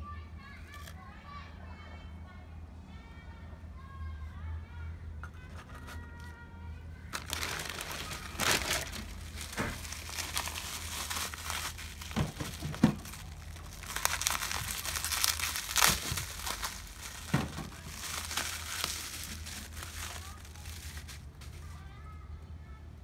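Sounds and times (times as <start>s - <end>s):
packaging crumpling: 7.1s - 21.8s.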